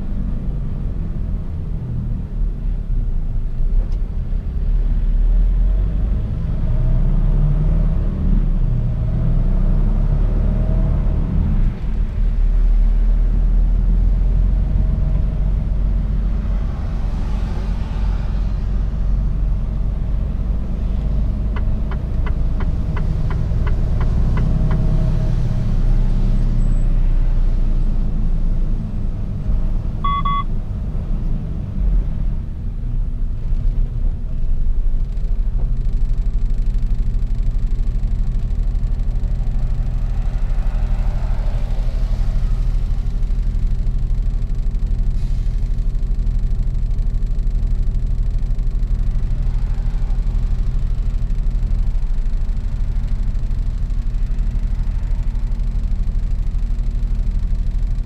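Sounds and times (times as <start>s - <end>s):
truck engine rumble from cab: 0.0s - 58.0s
short beep: 30.0s - 30.5s.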